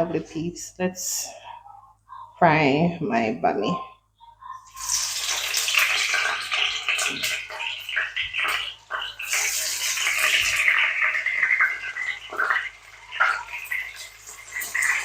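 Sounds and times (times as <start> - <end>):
flatbread sizzling in frying oil: 4.7 - 15.0.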